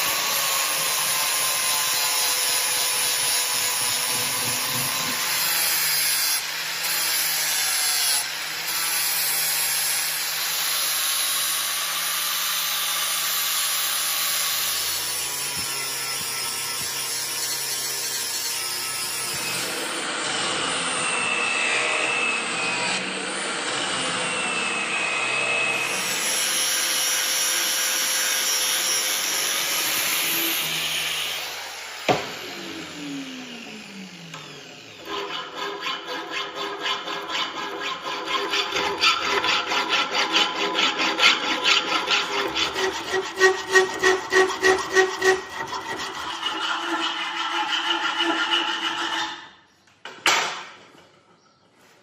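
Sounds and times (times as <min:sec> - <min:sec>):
power tool spinning down whine: 0:00.0 - 0:07.9, 0:11.2 - 0:35.6
power tool running: 0:00.0 - 0:46.7.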